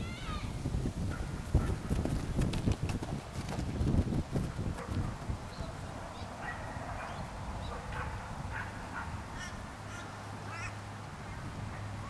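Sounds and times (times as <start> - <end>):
birds harsh calls: 5.5 - 11.5.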